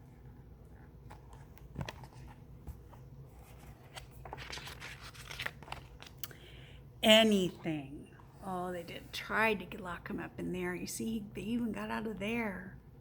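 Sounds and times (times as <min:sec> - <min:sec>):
book pages turning: 0:00.6 - 0:06.2
paper rustling: 0:01.0 - 0:06.2.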